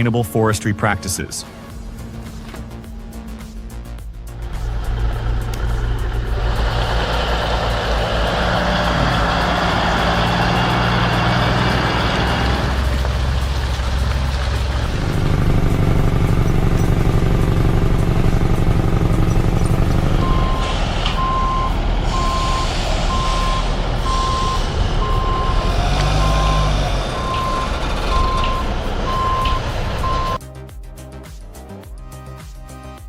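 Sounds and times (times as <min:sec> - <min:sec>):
diesel engine running: 0:01.5 - 0:30.4
reversing alarm beeping: 0:18.9 - 0:30.4.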